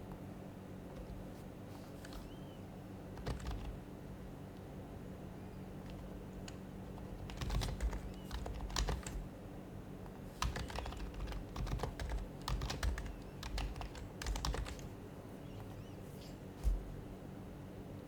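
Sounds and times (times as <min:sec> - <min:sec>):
soft keyboard typing clicks: 0:03.1 - 0:03.8, 0:05.8 - 0:09.3, 0:10.1 - 0:14.9.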